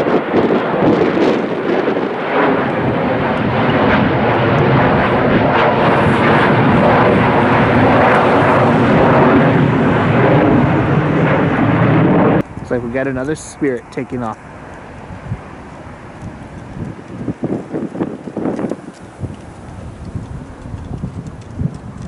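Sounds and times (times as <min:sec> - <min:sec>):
jet engines at takeoff: 0:00.0 - 0:22.0.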